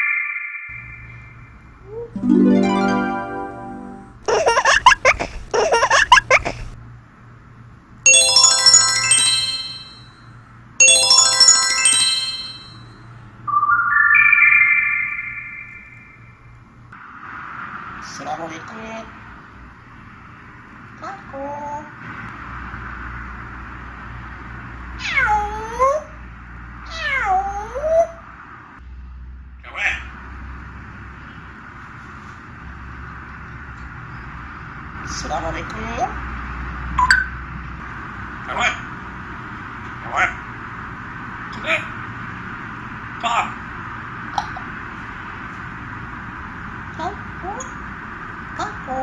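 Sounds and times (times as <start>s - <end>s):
intro music: 2.2s - 4.2s, 8.1s - 10.1s, 10.8s - 12.8s
shimmering chime flourishes: 2.2s - 4.2s, 8.1s - 10.1s, 10.8s - 12.9s.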